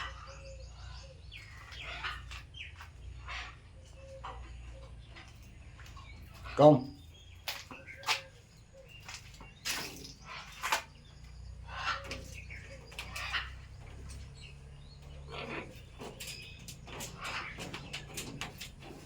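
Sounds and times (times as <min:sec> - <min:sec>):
parrot squawking and chirping: 0:00.0 - 0:04.4, 0:11.6 - 0:18.7.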